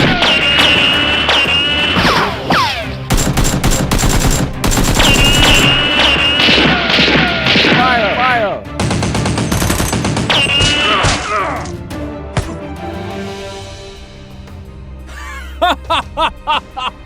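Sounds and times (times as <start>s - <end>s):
background music: 0.0s - 17.0s
rapid automatic gunfire: 3.1s - 7.9s, 8.8s - 10.9s
falling whistle-like tones: 5.1s - 6.6s.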